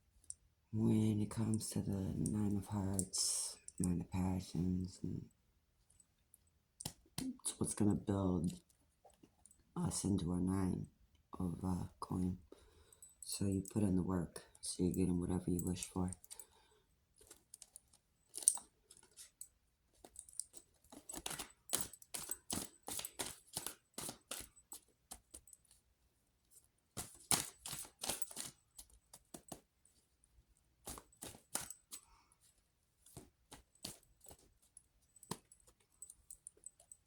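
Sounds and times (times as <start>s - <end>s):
cards being shuffled: 20.9s - 25.4s, 27.0s - 29.6s, 30.8s - 32.0s, 33.1s - 34.5s.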